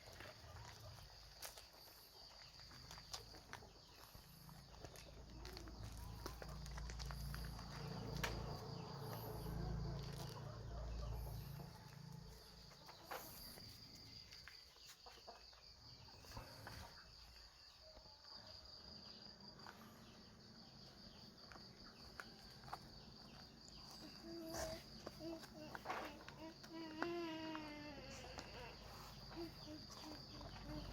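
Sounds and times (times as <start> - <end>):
high-pitched insect trill: 0.0 - 30.9.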